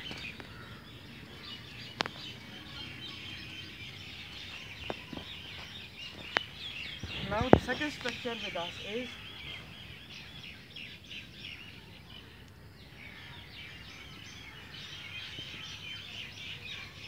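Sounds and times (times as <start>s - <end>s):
birds chirping: 0.0s - 17.0s
low outdoor background noise: 0.0s - 17.0s.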